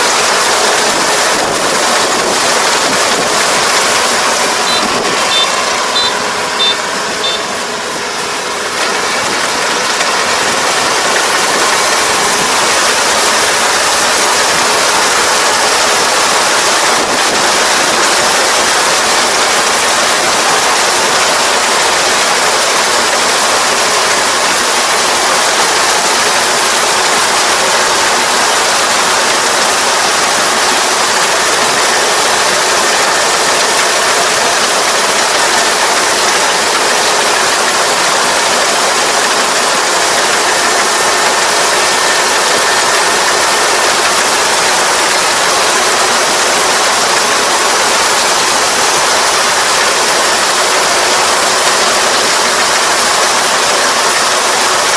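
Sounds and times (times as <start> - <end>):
combine harvester running: 0.0 - 54.9
short high beeps: 4.5 - 7.7.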